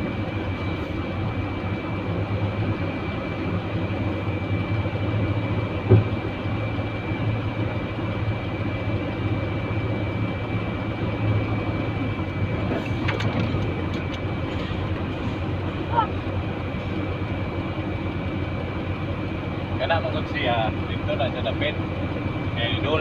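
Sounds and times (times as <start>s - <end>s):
thin constant whine: 0.0s - 23.0s
truck engine running: 0.0s - 23.0s.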